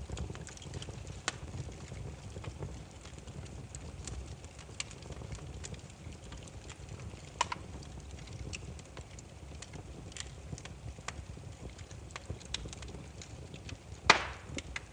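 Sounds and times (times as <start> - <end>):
firewood crackling and popping: 0.0 - 14.9
low rumble of flame: 0.0 - 14.9.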